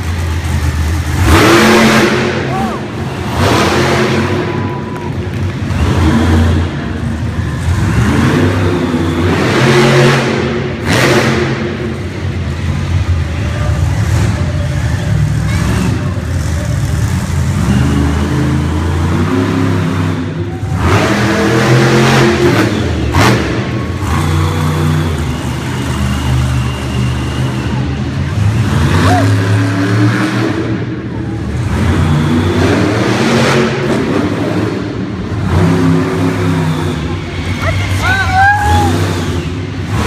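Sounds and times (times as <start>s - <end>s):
monster truck engine revving: 0.0s - 40.0s.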